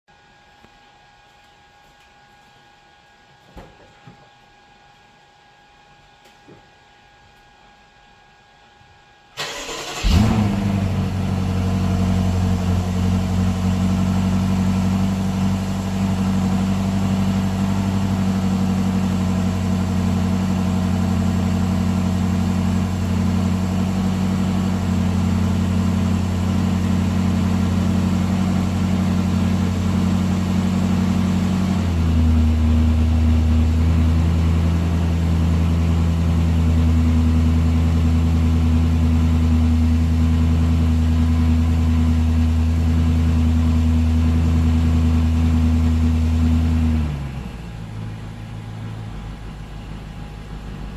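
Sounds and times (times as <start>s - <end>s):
engine cranking and starting: 9.4s - 11.1s.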